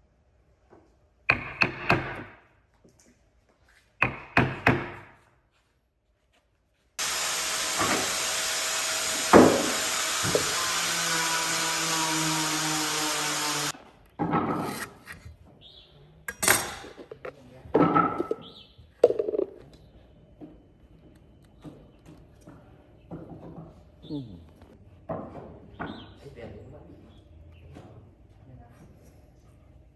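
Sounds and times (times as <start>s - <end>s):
woodworking power tool running: 7.0s - 13.8s.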